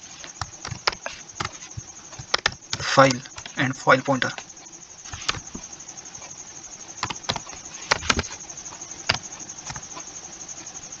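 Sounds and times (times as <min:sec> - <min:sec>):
faint steady hiss: 0:00.0 - 0:11.0
keyboard keystrokes: 0:02.2 - 0:03.6, 0:07.0 - 0:08.3.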